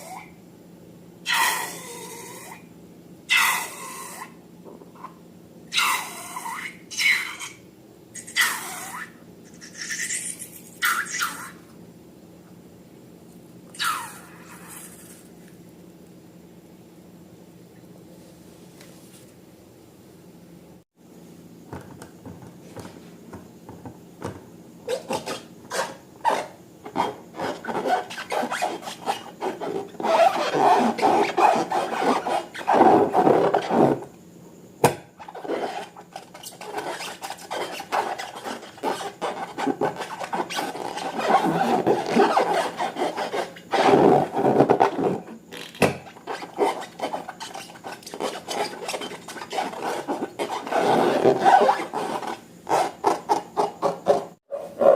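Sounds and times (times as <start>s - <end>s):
slime rubbing and scraping: 25.0s - 34.0s, 35.2s - 45.4s, 46.1s - 54.9s.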